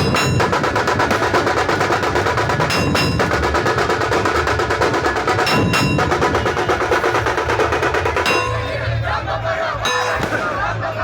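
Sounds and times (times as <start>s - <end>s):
fast drumming: 0.0s - 10.6s
ringing metallic strikes: 0.0s - 10.8s.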